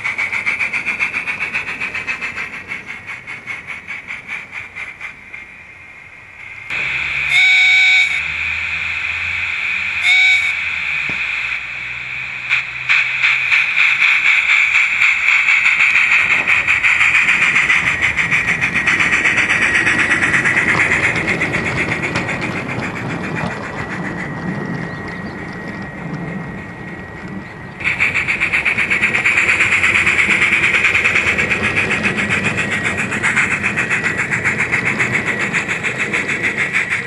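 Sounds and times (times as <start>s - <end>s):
steam hiss: 0.0s - 25.5s, 27.8s - 37.0s
rhythmic locomotive chuffing: 0.0s - 37.0s
low rumble: 6.1s - 37.0s
steam whistle toots: 6.7s - 12.0s.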